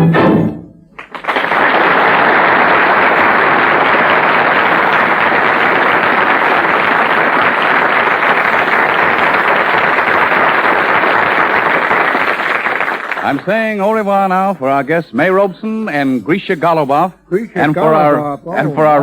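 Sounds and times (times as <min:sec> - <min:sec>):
audience applauding: 0:01.0 - 0:14.6.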